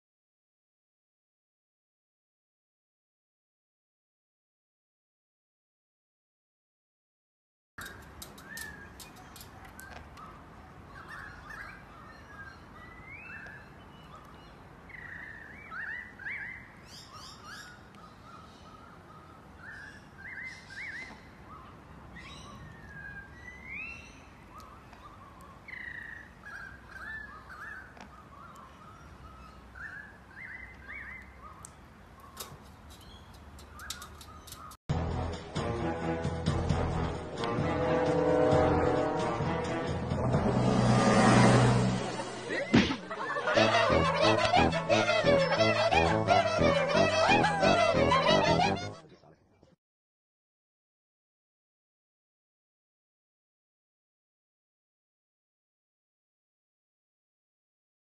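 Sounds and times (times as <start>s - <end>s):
sharp clicks: 7.8s - 10.1s, 31.6s - 34.8s
birds chirping and whistling: 7.8s - 34.8s.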